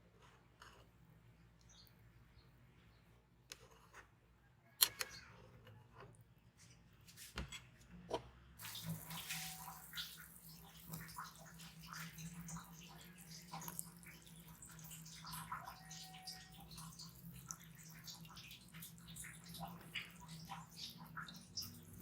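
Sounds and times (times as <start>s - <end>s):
running water: 8.6s - 22.0s.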